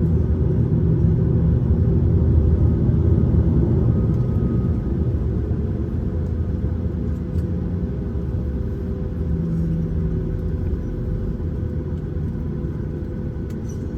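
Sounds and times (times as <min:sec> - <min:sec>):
airliner cabin rumble: 0:00.0 - 0:13.9.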